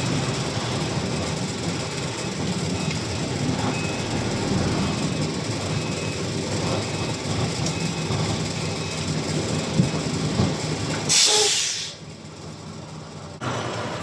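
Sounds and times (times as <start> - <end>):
truck engine idling: 0.0 - 14.0
faint repeating beep: 2.8 - 6.2
air brake hiss: 11.1 - 12.0.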